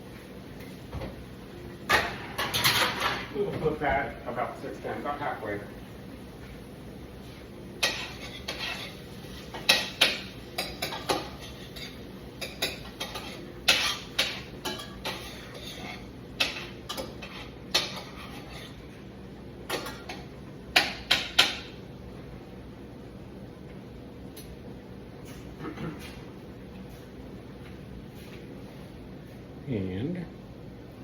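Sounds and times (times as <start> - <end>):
utensils clattering on cookware: 1.9 - 3.9, 7.8 - 19.0, 19.7 - 21.8.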